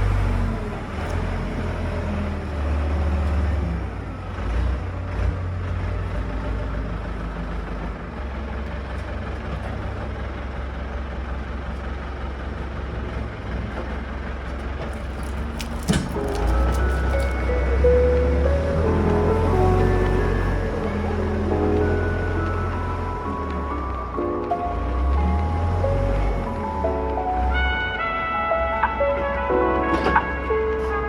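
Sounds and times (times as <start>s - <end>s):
sawmill machinery drone: 6.5s - 28.1s.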